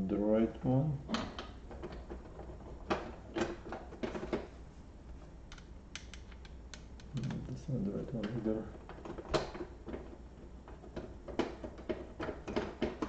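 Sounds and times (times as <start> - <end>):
small parts clicking on laptop casing: 5.5 - 7.4.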